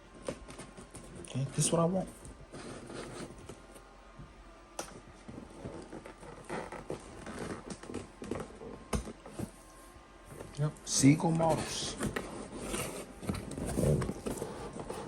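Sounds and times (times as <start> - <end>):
box and parts rustling: 11.3 - 15.0.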